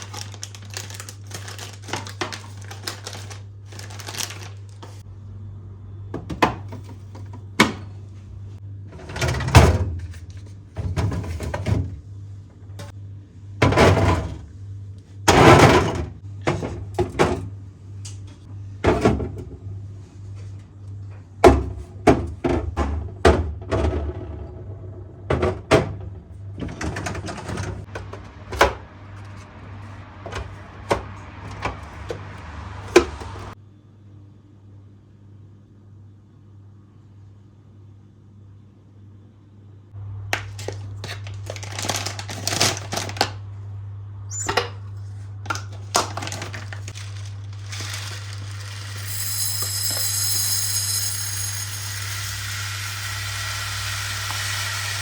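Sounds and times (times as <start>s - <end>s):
containers clattering in refrigerator: 8.9s - 12.0s, 13.6s - 14.4s, 15.3s - 17.5s, 25.2s - 29.4s, 45.5s - 49.0s.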